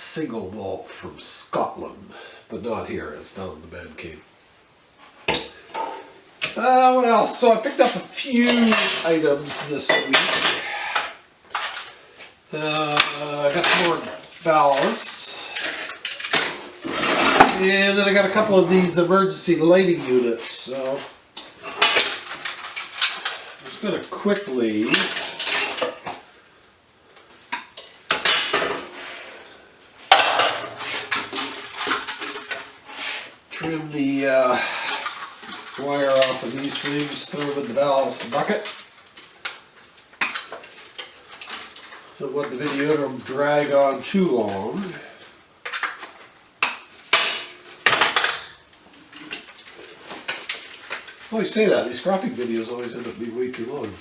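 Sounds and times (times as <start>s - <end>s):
metal clatter in bucket: 7.4s - 12.0s, 12.6s - 26.3s, 30.0s - 54.0s
metal parts clanking and rattling: 7.8s - 12.0s, 12.6s - 19.5s, 20.6s - 26.3s, 30.1s - 32.8s, 34.6s - 44.9s, 45.7s - 54.0s.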